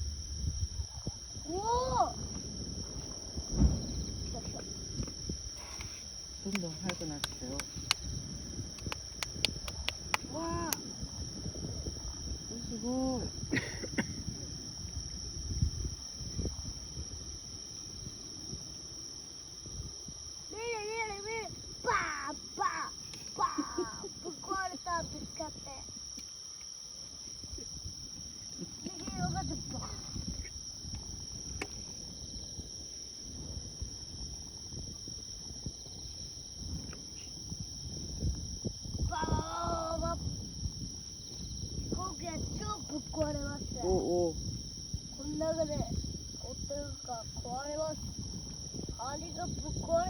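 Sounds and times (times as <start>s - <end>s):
low rumble: 0.0s - 13.5s
night insects chorus: 0.0s - 50.0s
low dull thumps: 2.3s - 5.2s.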